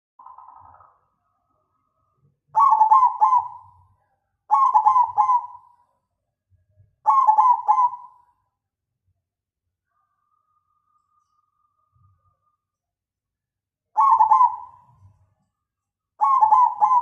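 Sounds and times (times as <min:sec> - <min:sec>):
dove cooing: 0:02.6 - 0:03.8, 0:04.5 - 0:05.7, 0:07.1 - 0:08.2, 0:14.0 - 0:15.2, 0:16.2 - 0:17.0.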